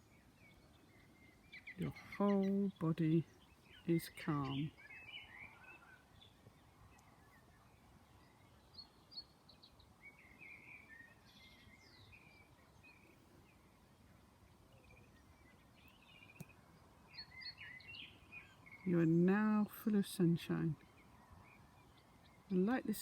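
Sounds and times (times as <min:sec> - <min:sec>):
faint birdsong: 0:00.0 - 0:23.0
low steady hiss: 0:00.0 - 0:23.0.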